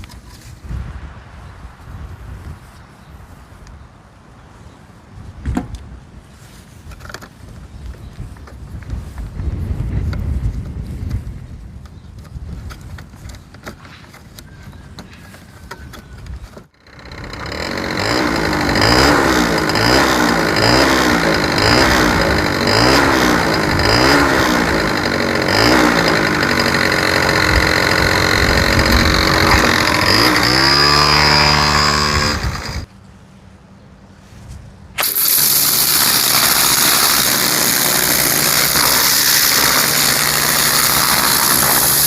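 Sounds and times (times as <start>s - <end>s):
scooter engine revving: 16.7s - 32.9s, 35.0s - 42.0s.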